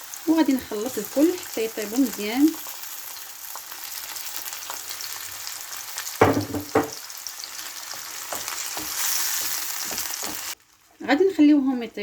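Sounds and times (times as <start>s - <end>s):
seafood sizzling in a frying pan: 0.0s - 12.0s
loud knocks: 6.2s - 7.0s.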